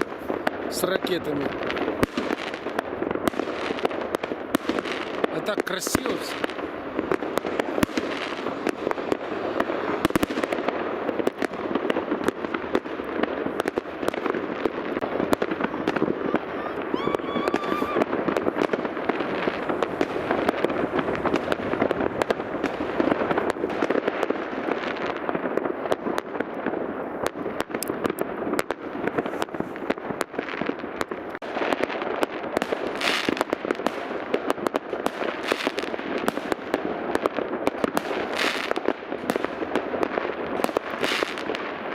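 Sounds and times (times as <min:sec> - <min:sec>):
fireworks bangs and crackles: 0:00.0 - 0:41.9
firework whistle: 0:15.4 - 0:18.8.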